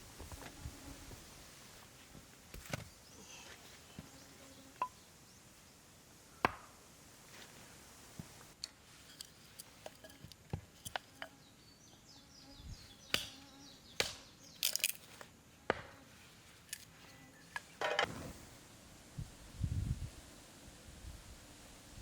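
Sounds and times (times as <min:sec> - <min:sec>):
faint insect chirping: 0:00.6 - 0:06.4.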